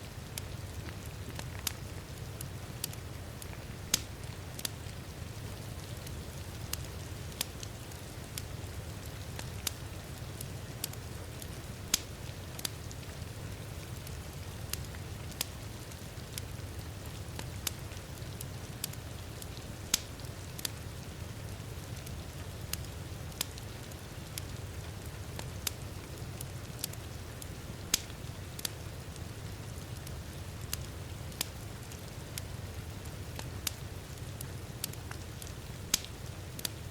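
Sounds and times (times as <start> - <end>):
steady rain: 0.0 - 36.9
wood fire crackling: 0.0 - 36.9
sharp pops of fire: 0.4 - 4.9, 6.0 - 13.0, 19.8 - 20.8, 27.9 - 29.1, 33.3 - 36.8.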